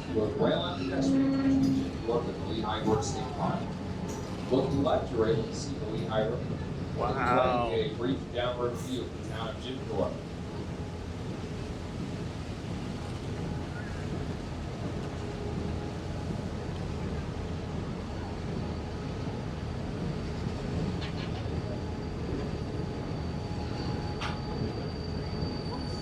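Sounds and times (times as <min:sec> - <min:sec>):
train rumbling along track: 0:00.0 - 0:26.0
faint high wheel squeal: 0:00.4 - 0:04.3, 0:18.1 - 0:26.0.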